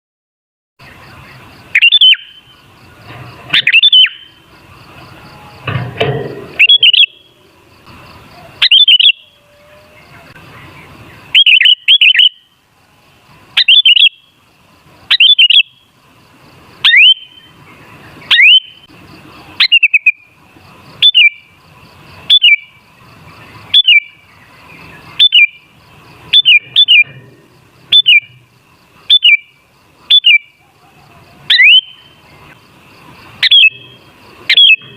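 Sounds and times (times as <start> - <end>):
bulbul calling sharp notes: 1.7 - 2.5, 3.4 - 4.5, 6.4 - 7.4, 8.4 - 9.6, 11.1 - 12.6, 13.6 - 14.4, 15.1 - 15.9, 16.8 - 17.6, 18.2 - 18.9, 19.6 - 20.4, 21.0 - 21.6, 22.2 - 22.8, 23.6 - 30.6, 31.5 - 32.6, 33.4 - 34.9
low rough noise: 2.4 - 8.6, 20.2 - 34.9.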